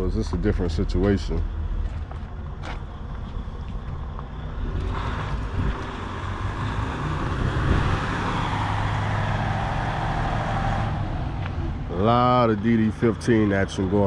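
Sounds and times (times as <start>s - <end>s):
diesel truck engine running: 0.0s - 14.0s
rushing noise: 4.5s - 12.6s.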